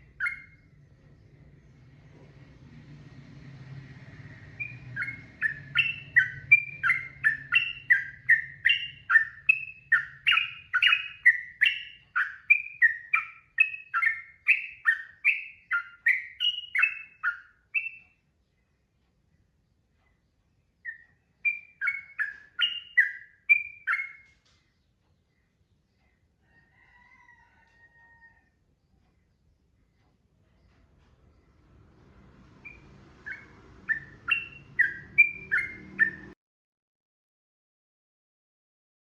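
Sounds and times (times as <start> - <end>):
faint low hum: 0.0 - 36.4
bird singing chirped phrases: 4.6 - 18.0.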